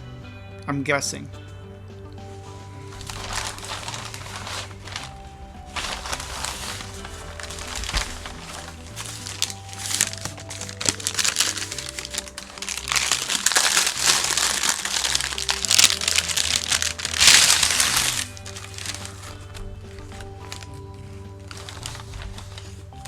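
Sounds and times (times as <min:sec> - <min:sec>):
background music: 0:00.0 - 0:23.0
food packaging crinkling: 0:02.4 - 0:23.0.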